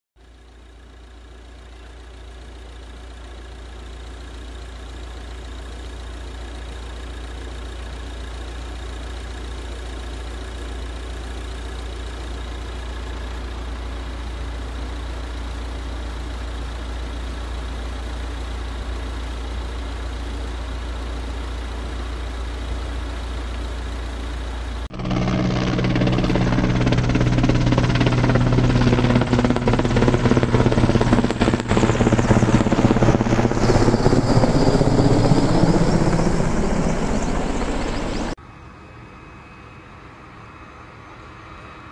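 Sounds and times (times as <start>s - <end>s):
helicopter rotor and engine: 0.4s - 41.9s
low rumble: 24.9s - 38.4s.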